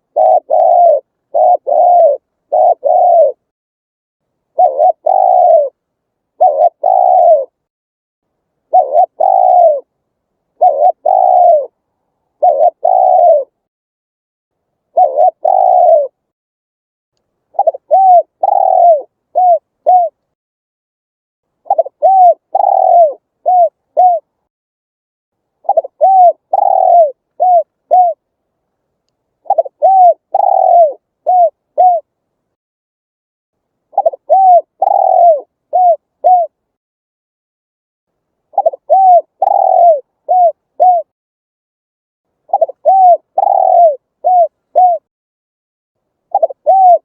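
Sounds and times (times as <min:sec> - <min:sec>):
dove cooing: 0:00.0 - 0:03.5, 0:04.5 - 0:07.6, 0:08.7 - 0:09.9, 0:10.5 - 0:13.6, 0:14.9 - 0:16.2, 0:17.5 - 0:20.2, 0:21.6 - 0:24.3, 0:25.6 - 0:28.2, 0:29.4 - 0:32.1, 0:33.9 - 0:36.6, 0:38.5 - 0:41.1, 0:42.5 - 0:45.1, 0:46.3 - 0:47.0.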